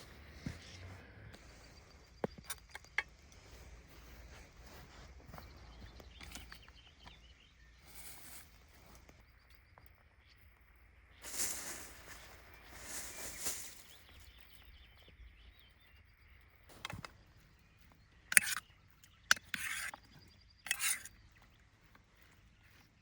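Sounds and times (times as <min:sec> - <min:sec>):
rustling and scraping: 0:11.2 - 0:14.3, 0:18.3 - 0:18.6, 0:19.3 - 0:20.0, 0:20.7 - 0:21.1.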